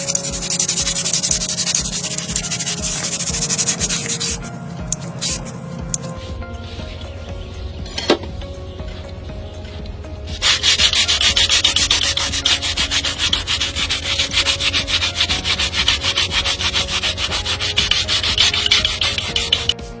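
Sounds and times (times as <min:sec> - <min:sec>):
rasp scraping hoof: 0:00.0 - 0:06.2, 0:10.3 - 0:19.8
steady low hum: 0:00.0 - 0:20.0.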